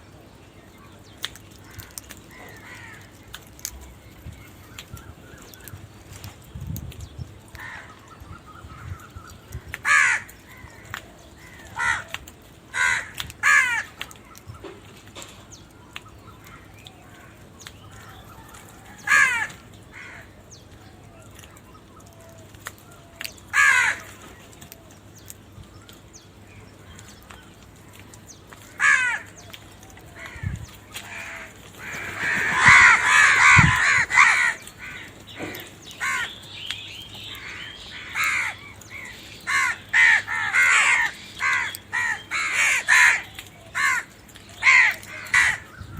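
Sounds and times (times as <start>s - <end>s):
crows cawing: 1.6s - 3.7s, 7.5s - 14.7s, 16.2s - 20.5s, 21.5s - 24.4s, 26.9s - 36.5s, 37.2s - 45.8s.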